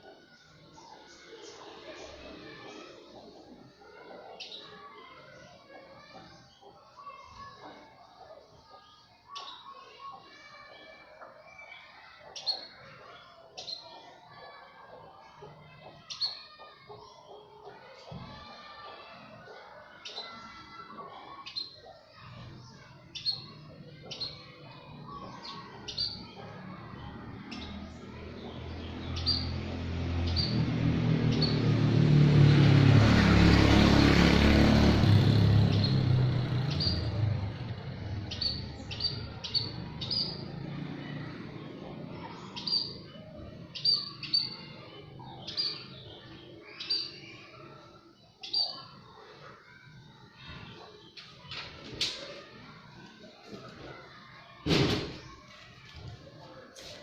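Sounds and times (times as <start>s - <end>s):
small birds chirping: 0.0s - 57.0s
passing motor vehicle: 24.9s - 47.8s.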